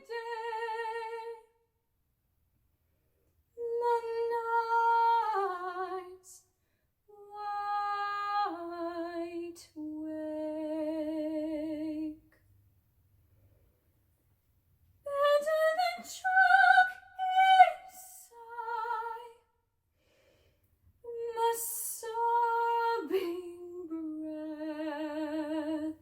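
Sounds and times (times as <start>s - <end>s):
classical solo voice singing: 0.0s - 1.6s, 3.6s - 6.4s, 7.1s - 12.4s, 15.0s - 19.5s, 21.0s - 26.0s.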